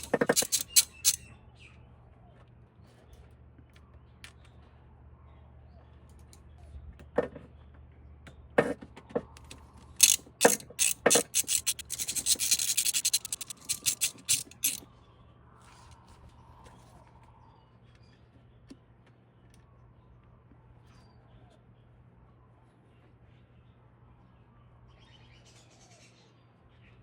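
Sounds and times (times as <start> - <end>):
ratchet wrench clicking: 0.0 - 1.2, 10.0 - 14.8.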